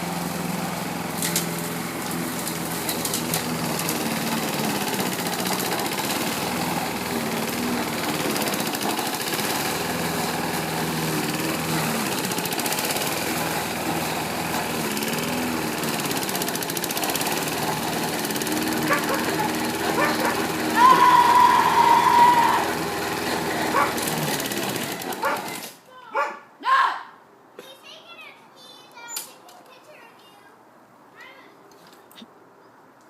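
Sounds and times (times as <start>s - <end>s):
lawn mower engine running: 0.0s - 25.7s.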